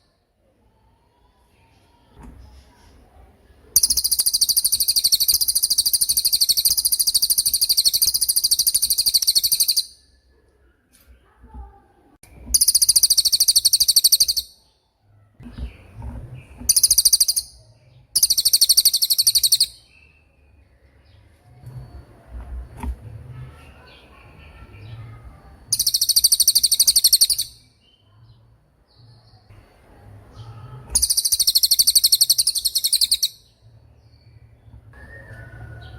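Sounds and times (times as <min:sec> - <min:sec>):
bird singing rapid trill: 0:03.8 - 0:10.2, 0:12.4 - 0:15.0, 0:15.6 - 0:22.0, 0:23.8 - 0:29.5, 0:30.3 - 0:35.9.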